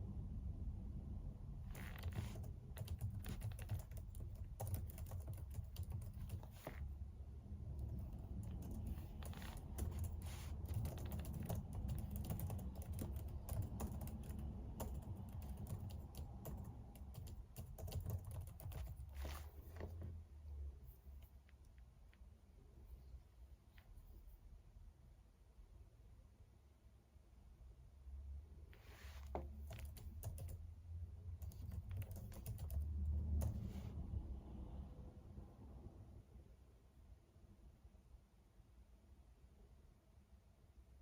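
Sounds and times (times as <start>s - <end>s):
keyboard typing clicks: 1.8s - 6.7s, 7.8s - 19.1s, 29.6s - 30.6s, 31.4s - 32.8s.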